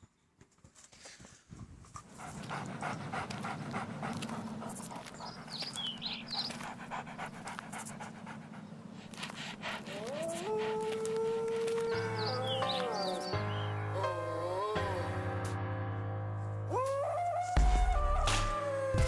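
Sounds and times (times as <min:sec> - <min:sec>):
puppies panting: 0:01.8 - 0:14.2.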